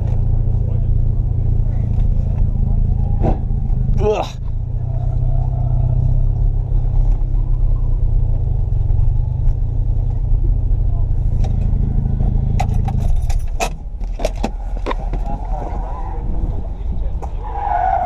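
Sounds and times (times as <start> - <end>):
rotary car engine running: 0.0 - 18.0
sharp clicks and knocks: 12.5 - 15.3.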